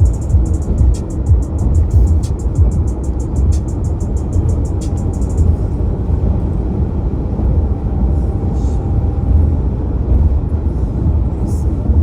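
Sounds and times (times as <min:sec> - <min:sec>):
fast high ticking: 0:00.0 - 0:05.5
low rumble: 0:00.0 - 0:12.0.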